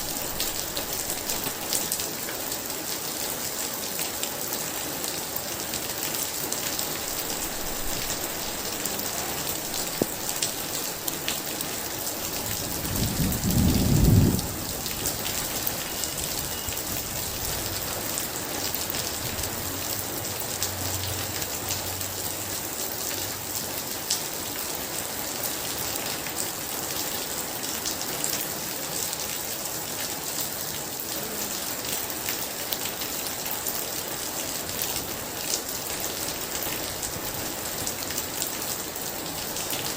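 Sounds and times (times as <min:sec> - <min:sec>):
heavy rain: 0:00.0 - 0:39.9
low rumble of thunder: 0:12.3 - 0:17.5
loud thunder clap: 0:12.8 - 0:14.6.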